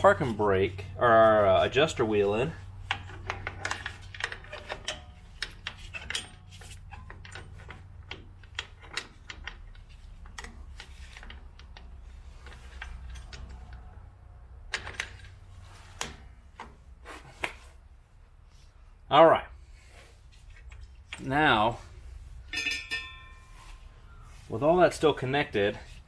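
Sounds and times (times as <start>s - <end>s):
low steady hum: 0.0s - 26.0s
metallic clicks of brake hardware: 2.8s - 16.8s.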